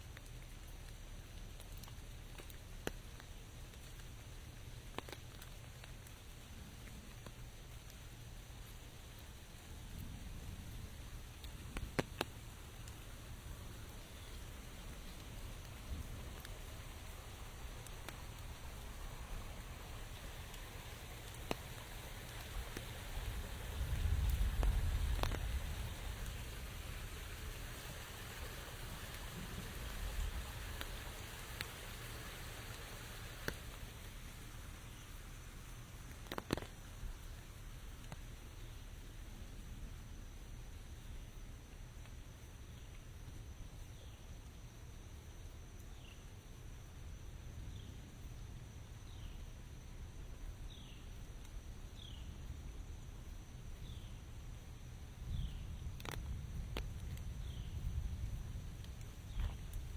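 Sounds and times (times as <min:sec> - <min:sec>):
outdoor hiss: 0:00.0 - 0:59.9
rain falling: 0:00.0 - 0:59.9.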